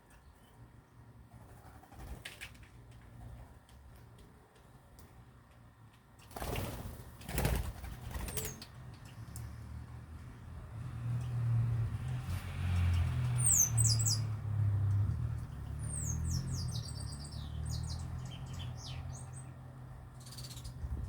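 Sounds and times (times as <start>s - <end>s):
small birds chirping: 8.0s - 9.6s, 12.6s - 21.0s.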